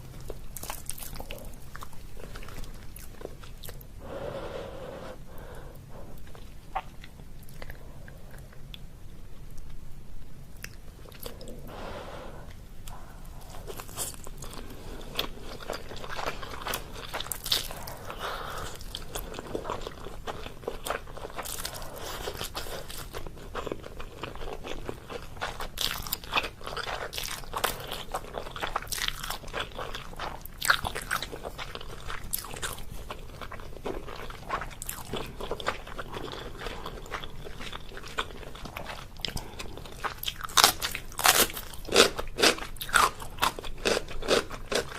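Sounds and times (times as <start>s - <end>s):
chewing and biting noodles: 13.6s - 44.9s.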